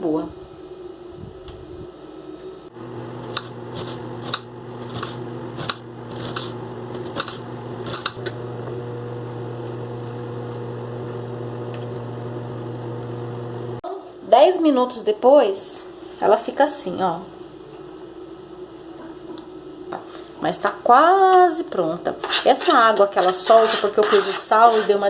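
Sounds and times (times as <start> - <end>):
microwave oven humming: 0.0 - 13.8.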